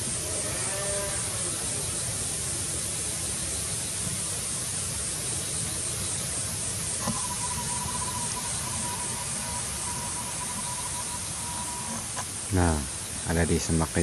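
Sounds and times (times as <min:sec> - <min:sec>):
high-pitched insect drone: 0:00.0 - 0:14.0
thin whistle-like tone: 0:07.0 - 0:12.0.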